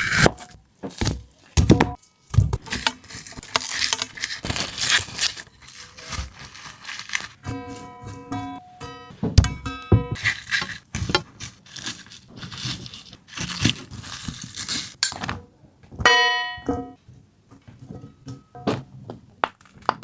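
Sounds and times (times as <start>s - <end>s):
packaging crinkling and tearing: 2.6s - 7.4s, 10.2s - 15.0s.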